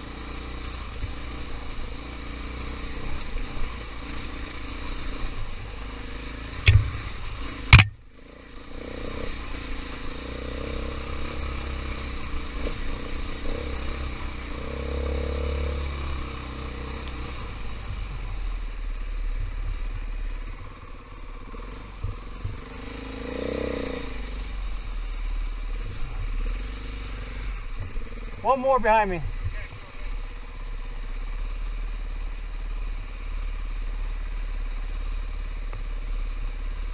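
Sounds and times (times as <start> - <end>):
motorcycle engine revving: 0.0 - 36.9
sharp knocks: 6.6 - 7.0, 7.7 - 8.0.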